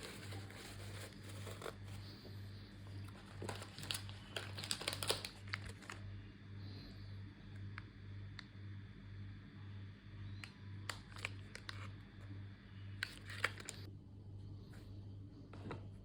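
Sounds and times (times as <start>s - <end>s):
packaging clicks and crinkles: 0.0s - 2.2s, 2.9s - 6.1s, 10.8s - 12.0s, 13.0s - 13.9s.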